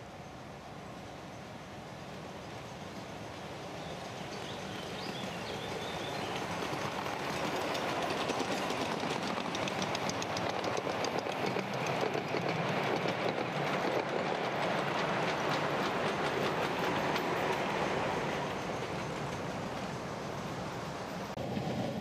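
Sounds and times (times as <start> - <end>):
miniature train running on track: 3.0 - 21.8
wheels clicking over rail joints: 5.0 - 20.1.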